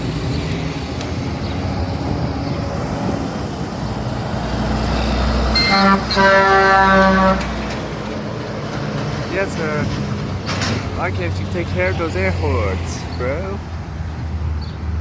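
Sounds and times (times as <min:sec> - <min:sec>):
heavy truck passing: 0:00.0 - 0:15.0
truck air horn blasts: 0:05.5 - 0:07.6.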